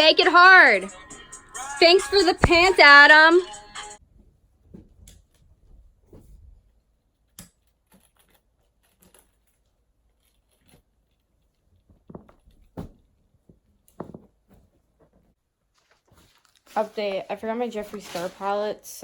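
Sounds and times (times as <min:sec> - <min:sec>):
soft rustling: 0:07.9 - 0:19.0.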